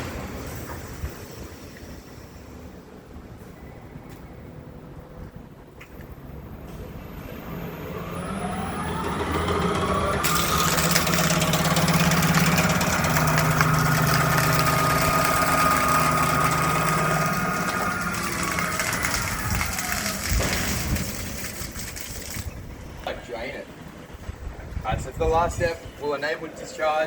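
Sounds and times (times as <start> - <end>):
electric motor whining: 7.8 - 22.5.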